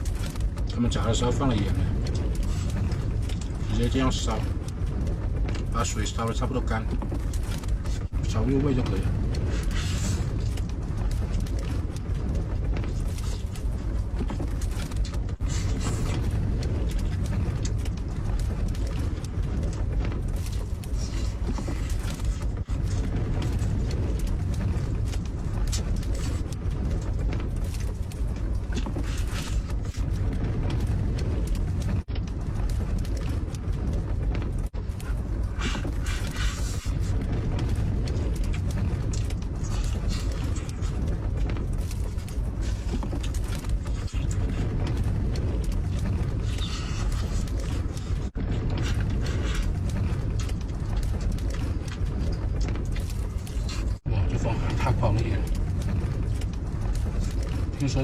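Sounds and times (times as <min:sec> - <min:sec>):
wind rumbling against camper: 0:00.0 - 0:58.0.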